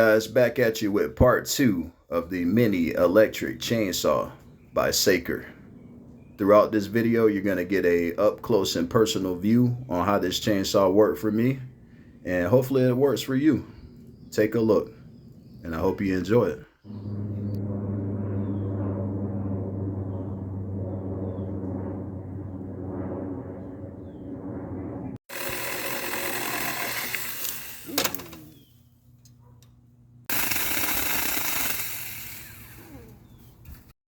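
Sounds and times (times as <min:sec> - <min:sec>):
electric chainsaw motor hum: 0:25.3 - 0:28.7, 0:30.3 - 0:33.4.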